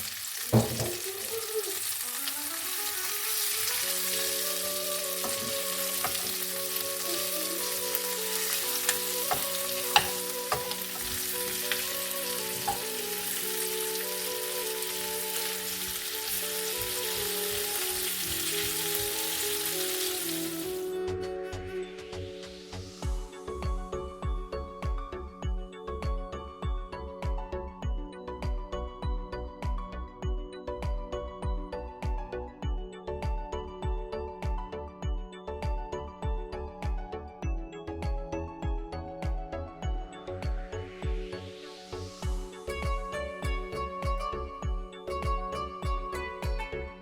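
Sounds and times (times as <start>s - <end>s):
chicken wings sizzling in pan: 0.0s - 20.9s
soft background music: 0.1s - 47.0s.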